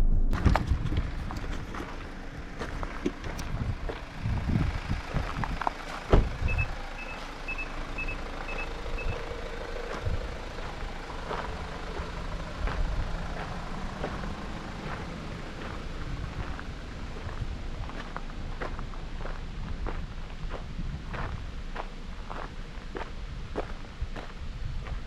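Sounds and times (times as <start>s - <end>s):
engine and tyre rumble: 0.0s - 25.0s
sharp thump: 6.1s - 6.4s
reversing warning beeps: 6.5s - 9.2s.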